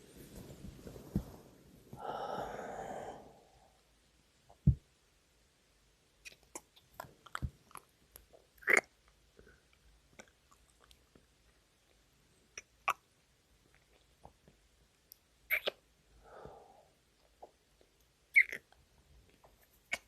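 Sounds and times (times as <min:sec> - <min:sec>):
man exhaling breathily: 0:02.0 - 0:03.7.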